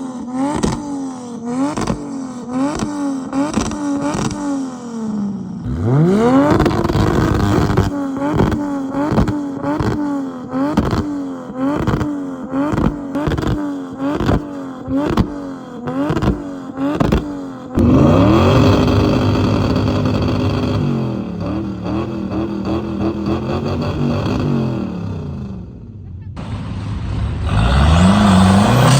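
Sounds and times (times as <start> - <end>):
car engine with sharp cracks: 0.4 - 1.0, 1.6 - 4.5, 6.4 - 25.0
engine revving smoothly: 1.5 - 10.0, 10.6 - 25.8, 26.4 - 28.9.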